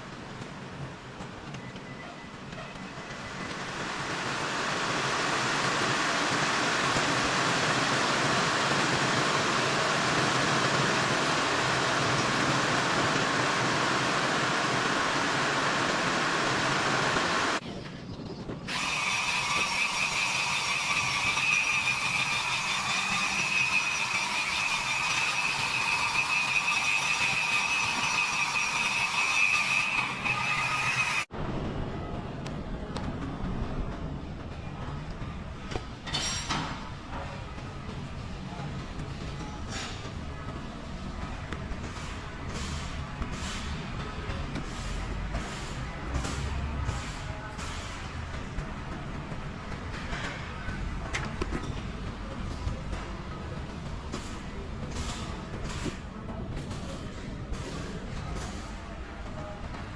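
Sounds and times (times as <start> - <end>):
power tool high-pitched whine: 18.7 - 31.3
power tool hissing: 18.7 - 31.3.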